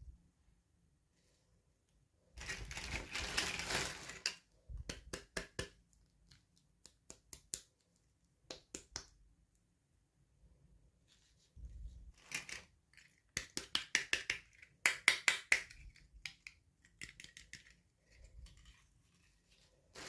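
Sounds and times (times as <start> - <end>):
packaging rustling: 2.4 - 4.4
plastic pieces clicking and tapping: 12.2 - 18.6.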